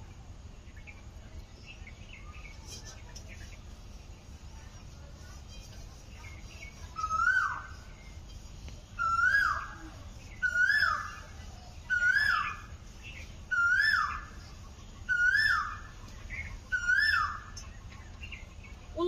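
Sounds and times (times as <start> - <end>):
bird calling: 6.2 - 18.8.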